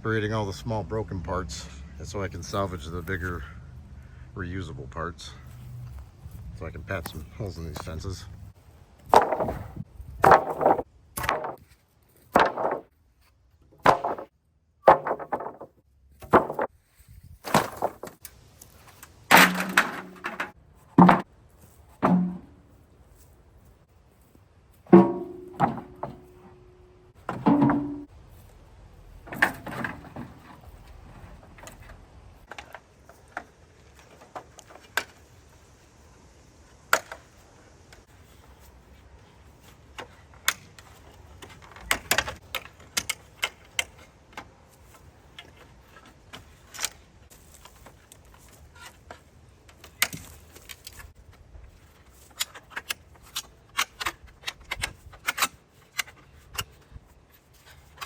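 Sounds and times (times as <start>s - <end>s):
wooden boards knocking and clattering: 9.1s - 12.9s, 13.7s - 16.7s, 17.4s - 18.2s, 19.0s - 21.3s, 21.9s - 22.7s, 24.9s - 28.1s, 29.2s - 35.2s, 40.0s - 44.1s.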